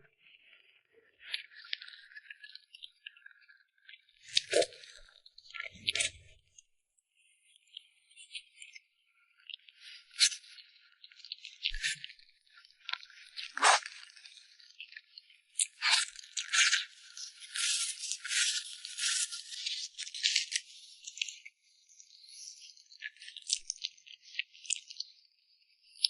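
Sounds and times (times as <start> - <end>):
crinkling handling sounds: 17.4 - 19.6.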